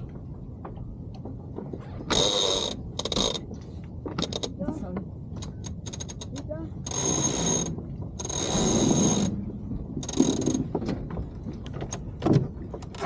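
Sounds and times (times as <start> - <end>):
winch ratcheting whirr: 2.1 - 4.6, 5.4 - 10.8.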